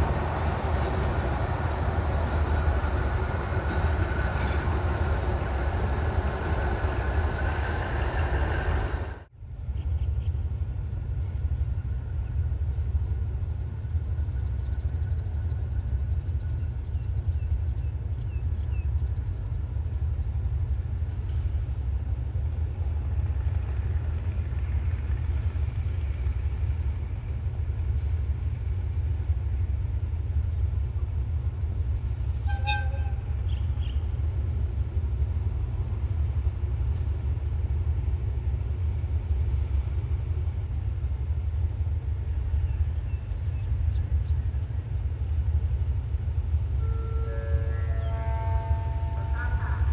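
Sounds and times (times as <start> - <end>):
diesel locomotive rumbling: 0.0 - 49.9
loud broad train noise: 0.0 - 49.9
train horn toot: 32.4 - 33.6, 46.8 - 49.9.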